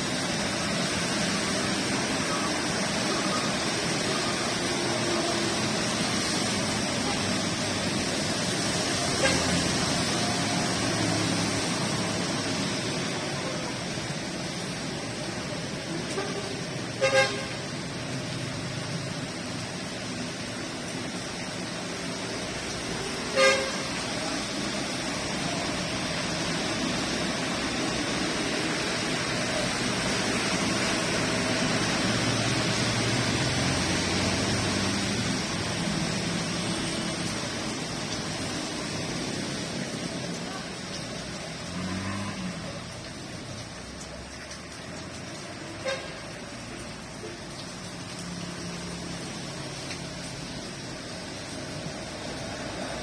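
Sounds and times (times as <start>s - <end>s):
rain hiss: 0.0s - 53.0s
traffic on wet road: 0.0s - 53.0s
car horn toot: 17.0s - 17.5s, 23.3s - 23.8s.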